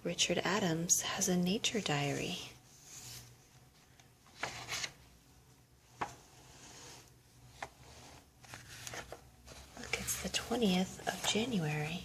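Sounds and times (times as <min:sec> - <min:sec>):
book pages rustling: 0:02.7 - 0:05.0, 0:06.0 - 0:11.6.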